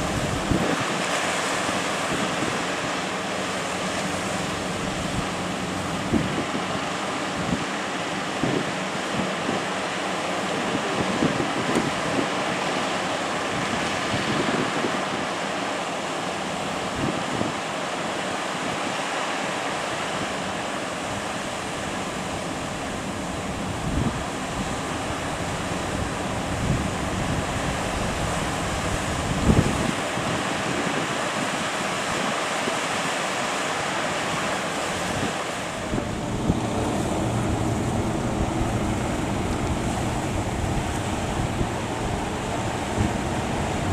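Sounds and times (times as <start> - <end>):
low engine drone: 0.0 - 14.8, 33.6 - 43.9
wind buffeting microphone: 0.0 - 15.4, 16.5 - 17.7, 20.1 - 33.1, 34.2 - 43.9
surf breaking: 0.0 - 43.9.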